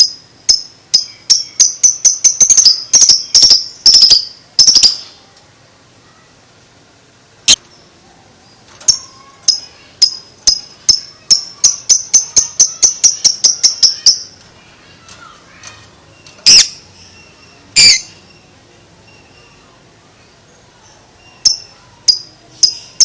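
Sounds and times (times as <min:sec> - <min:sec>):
lovebird high sharp chirps: 0:00.0 - 0:05.2, 0:08.8 - 0:14.4, 0:16.1 - 0:19.7, 0:20.9 - 0:23.0.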